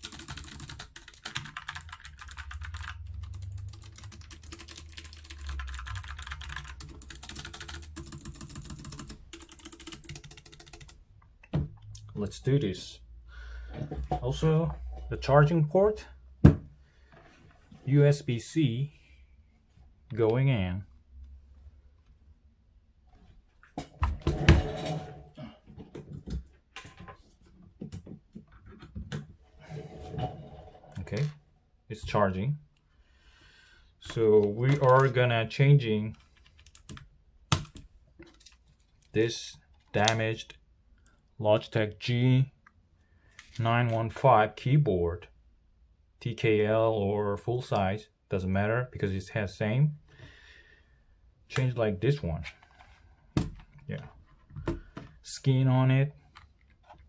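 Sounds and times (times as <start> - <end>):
mechanical keyboard typing: 0.0 - 11.0.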